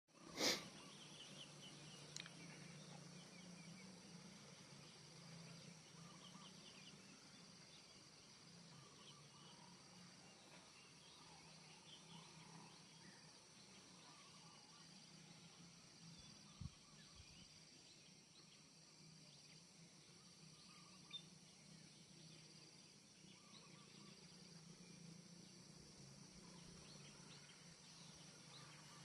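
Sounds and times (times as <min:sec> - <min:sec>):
insect drone: 0:00.2 - 0:29.0.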